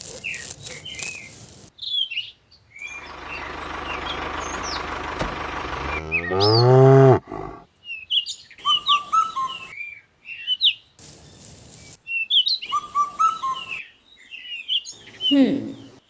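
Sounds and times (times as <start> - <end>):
small birds chirping: 0.0 - 16.0
brief hiss: 11.0 - 12.0.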